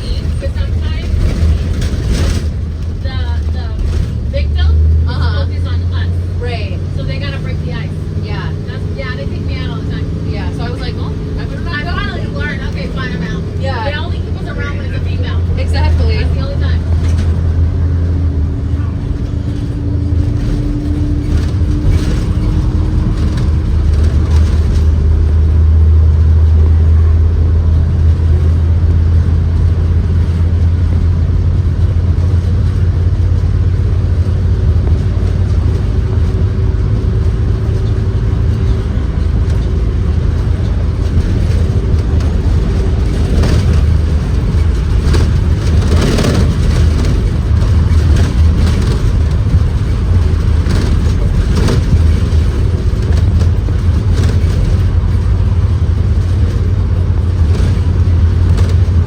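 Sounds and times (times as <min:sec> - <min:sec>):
rattles and knocks: 0:00.0 - 0:06.0, 0:06.9 - 0:59.0
bus engine droning: 0:00.0 - 0:59.0.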